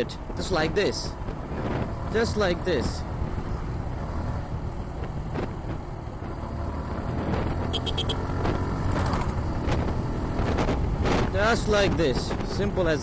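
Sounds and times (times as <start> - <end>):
motorcycle engine accelerating: 1.2 - 11.4.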